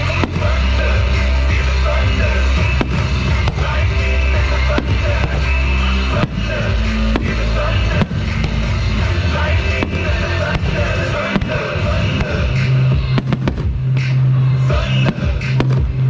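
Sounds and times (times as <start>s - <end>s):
fireworks bangs: 0.0s - 16.0s
music with held bass notes: 0.0s - 16.0s.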